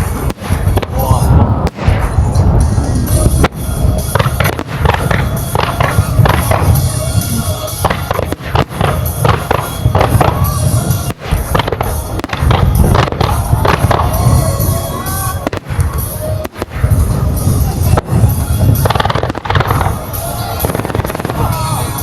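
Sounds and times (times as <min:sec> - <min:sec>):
deep rumble: 0:00.0 - 0:22.0
fireworks bangs and crackles: 0:00.0 - 0:22.0
music playing: 0:00.0 - 0:22.0.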